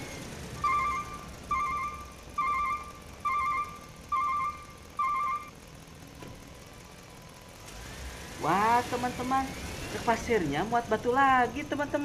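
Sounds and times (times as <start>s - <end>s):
reversing alarm beeps: 0.6s - 5.6s.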